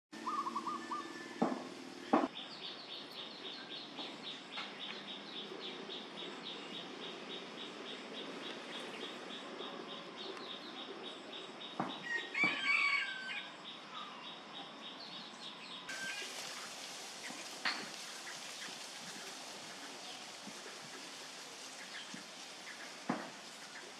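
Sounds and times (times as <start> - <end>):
bright hiss: 0.2 - 2.3, 15.9 - 23.9
loud multi-tone bird call: 0.2 - 2.3.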